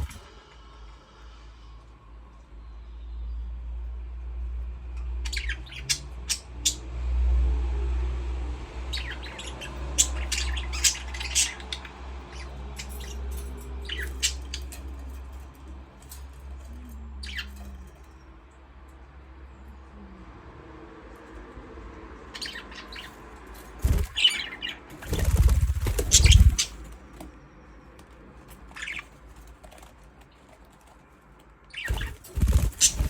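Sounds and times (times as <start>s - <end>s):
budgerigars chirping: 5.2s - 6.8s, 8.9s - 14.8s, 17.2s - 17.6s, 22.3s - 26.8s, 28.7s - 29.1s, 31.7s - 33.0s
steady low rumble: 23.8s - 27.0s.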